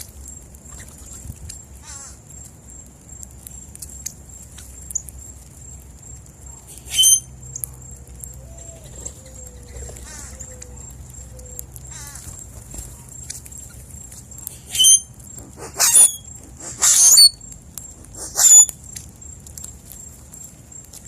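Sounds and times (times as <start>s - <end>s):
short bird chirps: 6.8s - 7.2s, 14.6s - 15.1s, 15.7s - 17.4s, 18.2s - 18.7s
loud sharp bird call: 14.7s - 17.4s, 18.1s - 18.7s.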